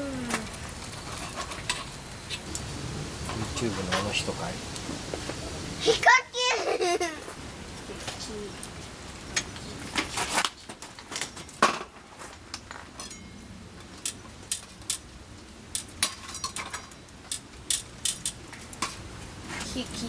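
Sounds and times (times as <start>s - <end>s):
metal utensils clinking: 16.0s - 17.0s.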